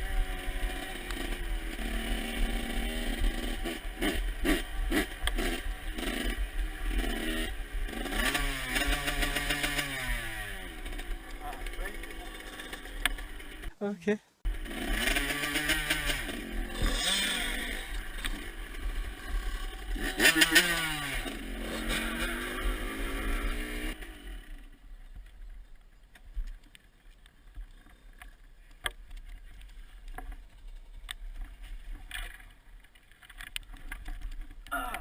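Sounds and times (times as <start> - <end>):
dirt bike engine revving: 0.0 - 13.8, 14.5 - 24.8.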